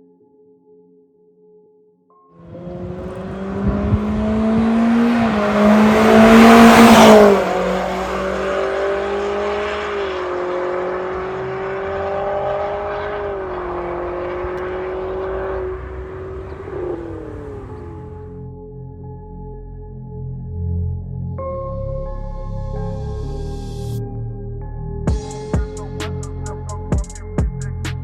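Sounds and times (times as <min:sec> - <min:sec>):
car engine accelerating: 0:02.4 - 0:18.5.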